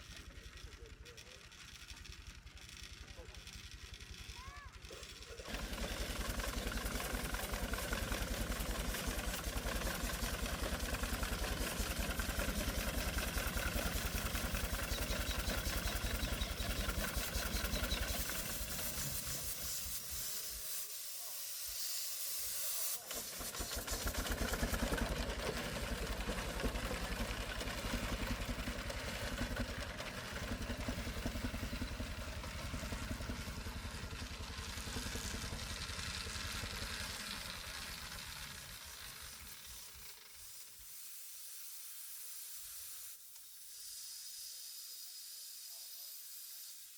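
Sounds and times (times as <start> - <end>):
engine running: 0.0 - 20.6, 23.0 - 40.7
steady hiss: 18.1 - 24.0, 38.0 - 46.9.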